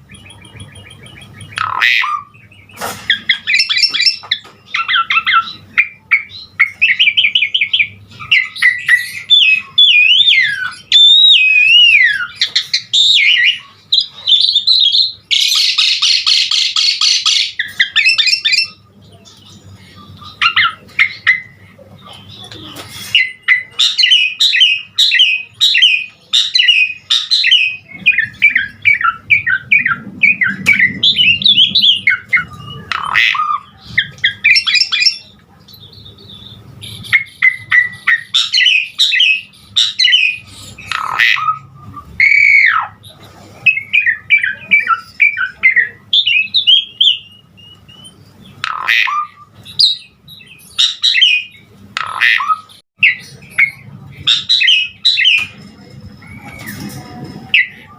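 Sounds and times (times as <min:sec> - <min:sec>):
harsh squawks: 0:00.0 - 0:02.5, 0:23.0 - 0:35.3, 0:37.1 - 0:43.0, 0:48.6 - 0:55.4.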